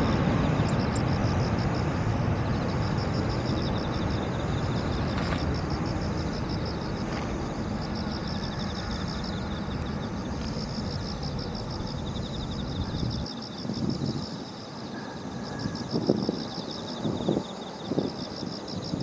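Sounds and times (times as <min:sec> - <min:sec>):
jet engine rumble: 0:00.0 - 0:14.5
insects chirping: 0:00.0 - 0:19.0.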